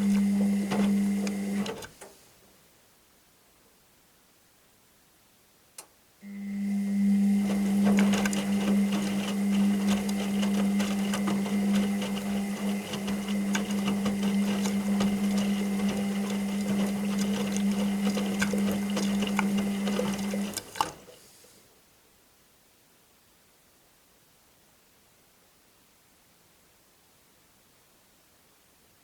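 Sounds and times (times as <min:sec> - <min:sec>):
washing machine motor hum: 0:00.0 - 0:01.9, 0:06.2 - 0:21.1.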